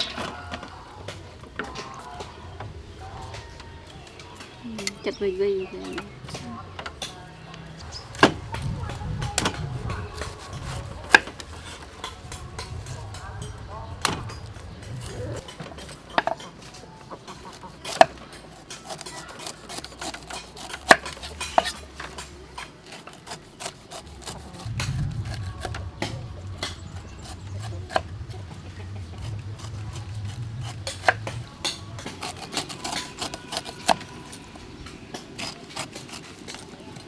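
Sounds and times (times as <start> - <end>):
utensils clinking against dishes: 3.2 - 24.7
low rumble: 24.6 - 32.0.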